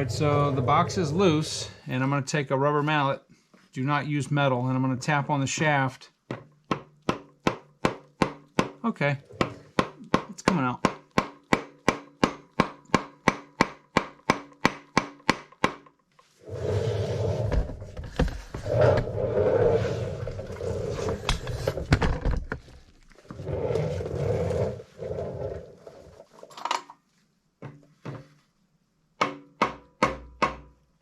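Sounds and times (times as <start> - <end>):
rough scraping: 0.0 - 2.2, 16.4 - 21.9, 23.2 - 26.5.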